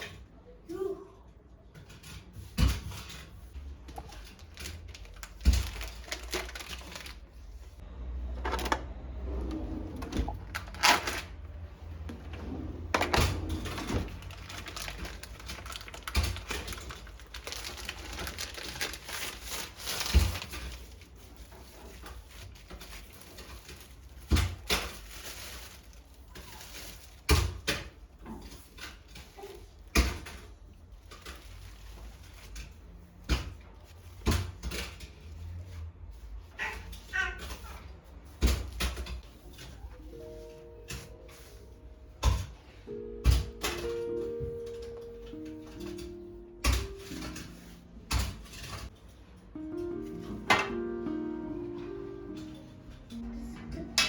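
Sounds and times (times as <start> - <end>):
rustling: 2.4 - 7.8, 9.6 - 27.6, 28.4 - 33.1.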